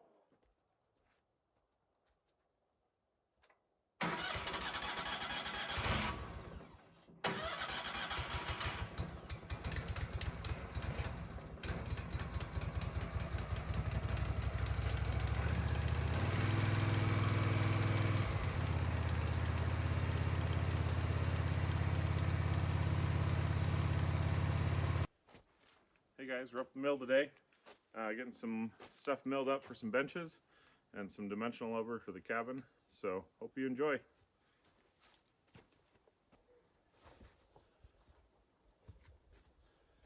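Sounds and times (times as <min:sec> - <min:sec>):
gasoline engine starting and running: 0:04.0 - 0:25.1.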